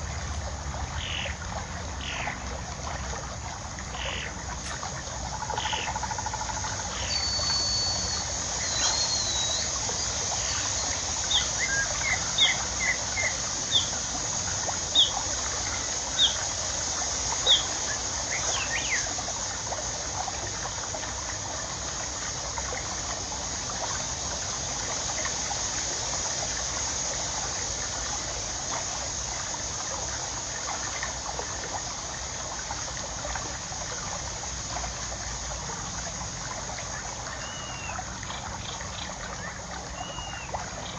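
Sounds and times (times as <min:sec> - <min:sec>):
water trickling: 0:00.0 - 0:40.9
bird calling: 0:01.0 - 0:01.3, 0:05.4 - 0:09.8, 0:37.4 - 0:38.0, 0:40.0 - 0:40.6.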